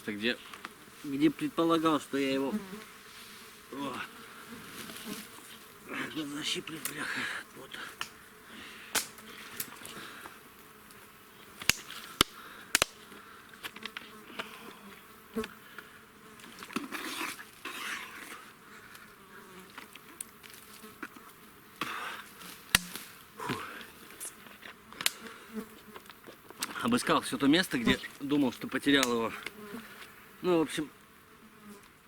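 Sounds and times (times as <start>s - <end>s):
insects buzzing: 0.0s - 32.0s
sharp clicks and cracks: 8.9s - 9.7s, 11.6s - 13.0s, 24.9s - 25.2s.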